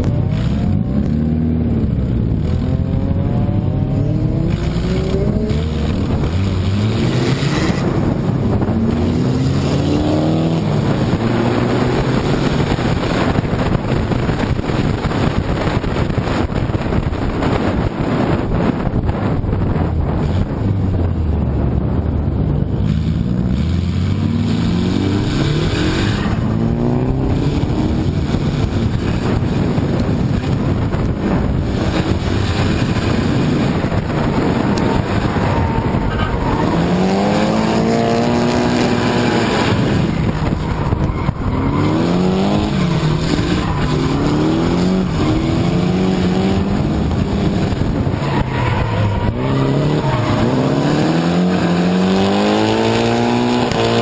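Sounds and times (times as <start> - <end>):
car engines revving hard: 0.0 - 54.0
tyres sliding on asphalt: 3.9 - 8.8, 22.8 - 54.0.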